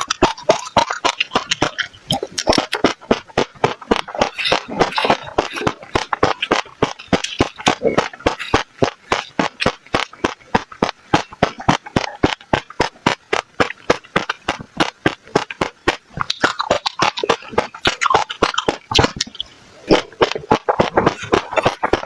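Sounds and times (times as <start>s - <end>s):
seeds crunched between teeth: 0.0s - 22.0s.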